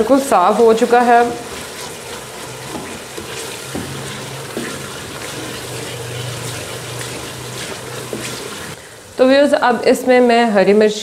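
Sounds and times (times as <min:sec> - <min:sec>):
masala sizzling and bubbling: 0:00.0 - 0:10.8
wooden spoon knocking pot: 0:01.2 - 0:08.8.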